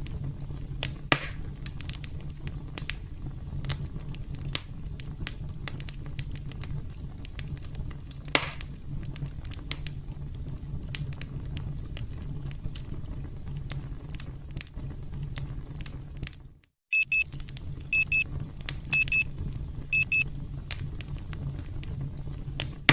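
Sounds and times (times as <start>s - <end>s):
campfire crackling: 0.0s - 22.9s
timer alarm beeping: 16.9s - 17.2s, 18.0s - 18.2s, 18.9s - 19.2s, 20.0s - 20.2s.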